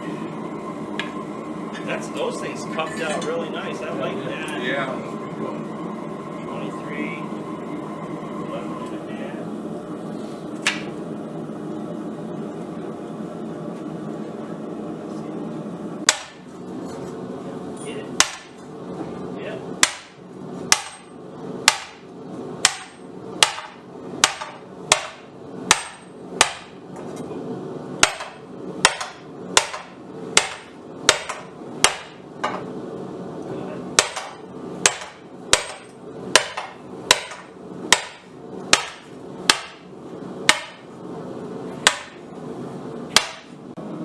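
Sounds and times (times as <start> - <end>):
hammer striking steel on anvil: 16.1 - 16.4, 18.2 - 18.6, 19.8 - 21.1, 21.7 - 22.0, 22.6 - 26.8, 28.0 - 32.6, 34.0 - 39.9, 40.5 - 40.9, 41.8 - 42.2, 43.1 - 43.6.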